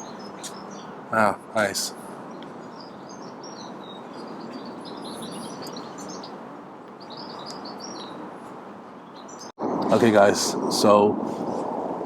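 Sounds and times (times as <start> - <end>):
small birds chirping: 0.0 - 9.6
outdoor background hiss: 0.0 - 12.0.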